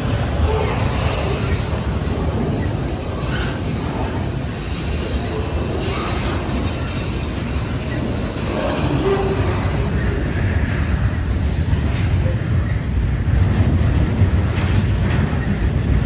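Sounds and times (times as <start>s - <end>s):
train wheels rumbling on rails: 0.0s - 16.0s
wheel squeal: 0.4s - 3.9s, 4.5s - 10.2s.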